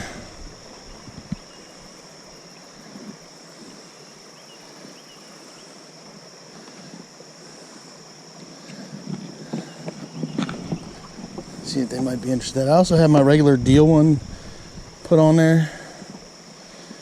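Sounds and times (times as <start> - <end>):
high-pitched hum: 0.0 - 3.0, 9.6 - 17.0
wind: 0.0 - 17.0.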